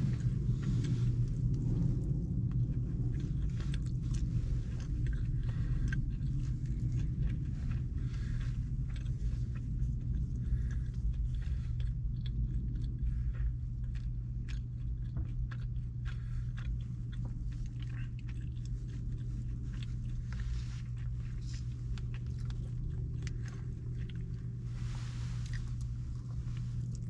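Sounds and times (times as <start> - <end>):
person chewing: 0.0 - 27.0
steady low hum: 0.0 - 27.0.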